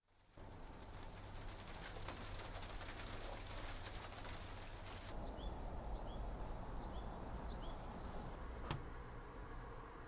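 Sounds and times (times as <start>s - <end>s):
low outdoor rumble: 0.1s - 10.0s
small bird calling: 4.9s - 9.4s.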